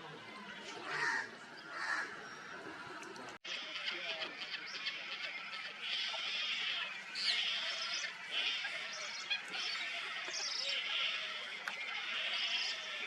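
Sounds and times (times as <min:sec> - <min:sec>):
birds calling with scratchy notes: 0:03.4 - 0:13.0.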